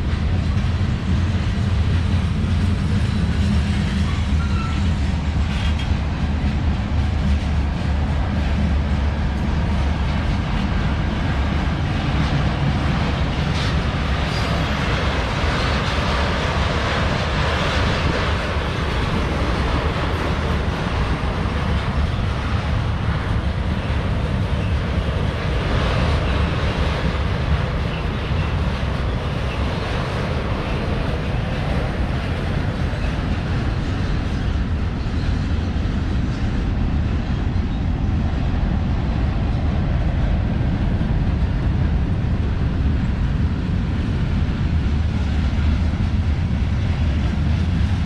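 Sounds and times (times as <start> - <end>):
freight train rumbling past: 0.0 - 48.0.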